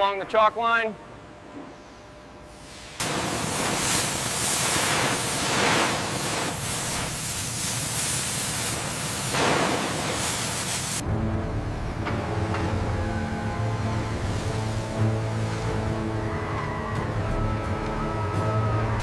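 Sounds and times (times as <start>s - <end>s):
cutting torch hissing: 2.6s - 11.0s.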